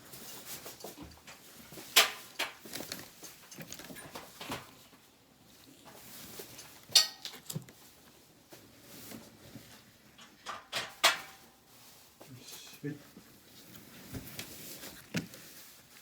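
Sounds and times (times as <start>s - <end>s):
knocks and clatter: 10.2s - 11.4s.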